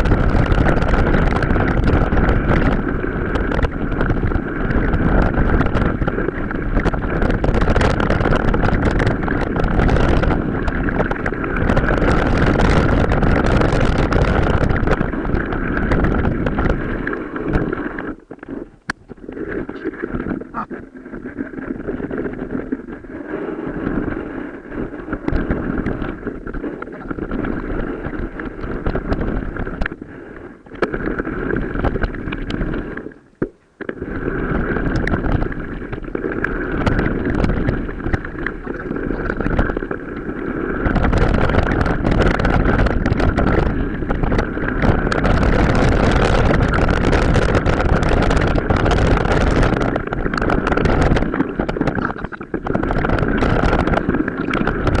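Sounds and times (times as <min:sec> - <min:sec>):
mountain bike rattling: 0:00.0 - 0:17.8
wind buffeting microphone: 0:00.0 - 0:55.0.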